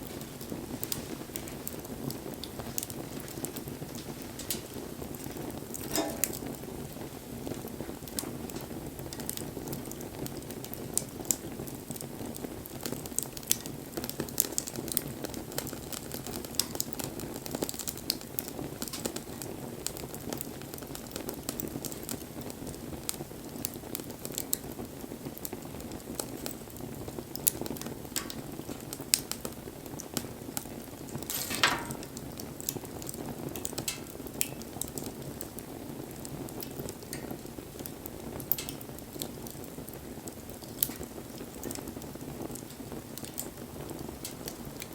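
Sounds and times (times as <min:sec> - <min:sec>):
fire flames rushing: 0:00.0 - 0:22.2
fire crackling and popping: 0:00.0 - 0:44.9.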